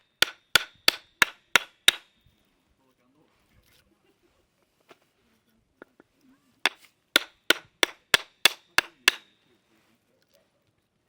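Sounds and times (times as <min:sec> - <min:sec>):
metal striking metal with ringing: 0:06.7 - 0:09.4.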